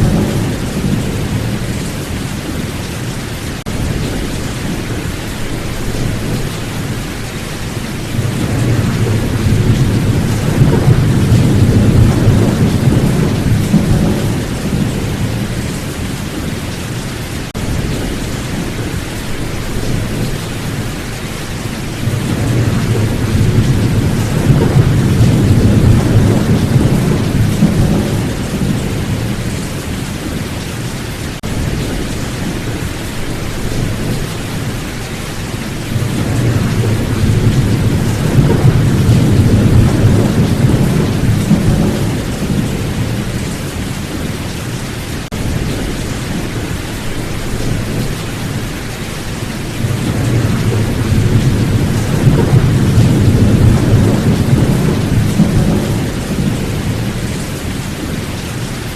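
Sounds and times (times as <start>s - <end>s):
thunder rolling: 0.0s - 2.7s, 8.0s - 16.7s, 17.5s - 30.4s, 35.8s - 44.3s, 45.2s - 58.3s
steady rain: 0.0s - 58.9s.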